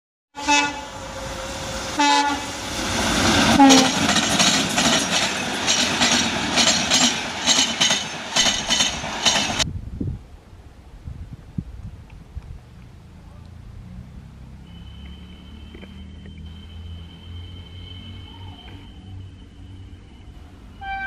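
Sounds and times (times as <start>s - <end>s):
train horn blasts: 0.4s - 2.7s, 3.4s - 4.1s, 14.7s - 21.0s
open-air ambience: 0.4s - 21.0s
train wheels clickety-clack: 2.8s - 9.6s.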